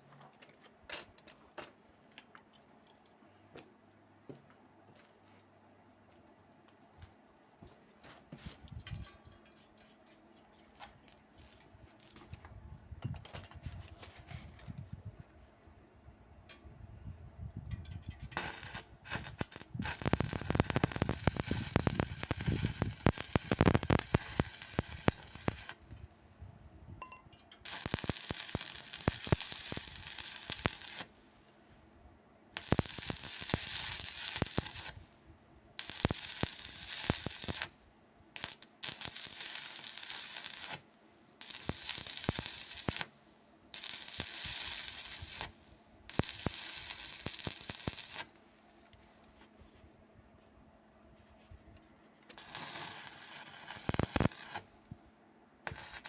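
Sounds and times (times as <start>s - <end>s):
welding arc crackling: 18.3s - 25.9s, 27.6s - 31.1s, 32.6s - 35.1s, 35.8s - 37.7s, 38.4s - 48.3s, 52.3s - 54.8s, 55.6s - 56.0s.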